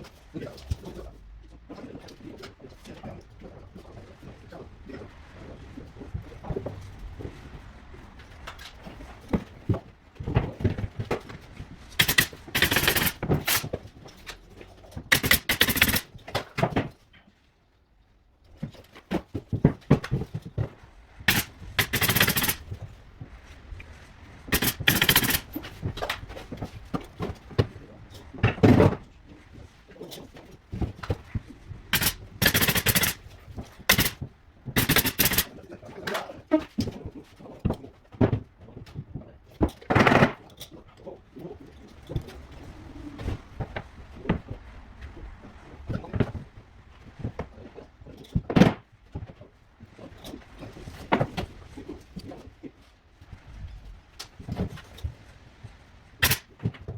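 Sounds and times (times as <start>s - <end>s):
pneumatic nail gun firing: 12.0s - 13.7s, 15.1s - 16.1s, 21.3s - 22.6s, 24.5s - 26.2s, 32.0s - 33.3s, 33.9s - 34.2s, 34.8s - 35.5s, 56.2s - 56.6s.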